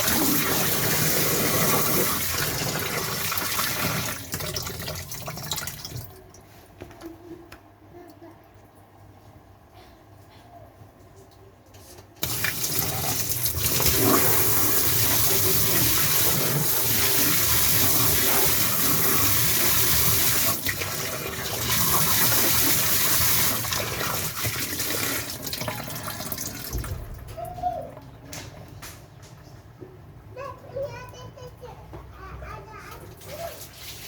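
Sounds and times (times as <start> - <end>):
water pouring: 0.0 - 6.5, 12.2 - 28.0, 33.1 - 34.0.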